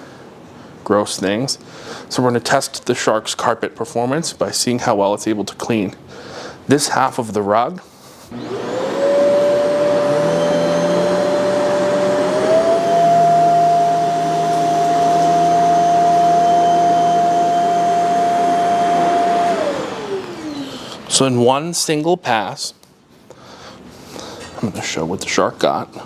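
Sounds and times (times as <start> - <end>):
vacuum cleaner motor whine: 8.3 - 21.2.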